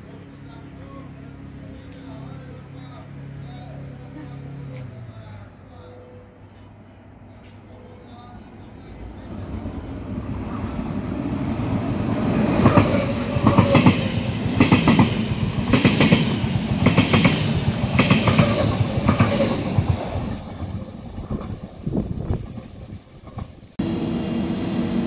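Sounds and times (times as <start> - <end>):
train wheels clattering: 12.1 - 23.6.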